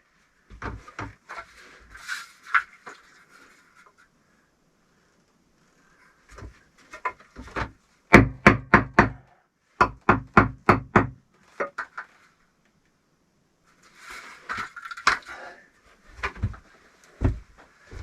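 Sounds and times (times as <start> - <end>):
hard knocks on bricks: 7.5 - 9.2.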